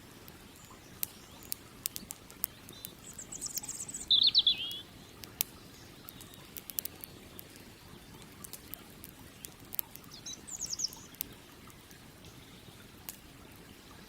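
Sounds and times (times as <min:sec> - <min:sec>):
campfire crackling and popping: 0:00.0 - 0:14.0
small bird trilling: 0:00.6 - 0:05.4, 0:09.4 - 0:11.2.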